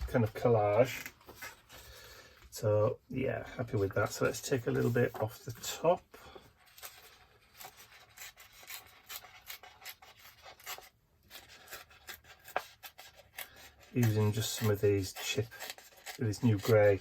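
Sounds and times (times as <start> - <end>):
paper being torn by hand: 6.8 - 17.0.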